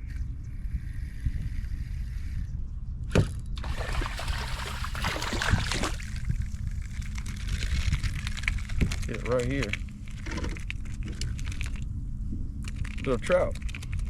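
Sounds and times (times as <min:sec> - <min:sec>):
water splashing and trickling: 0:03.6 - 0:07.1.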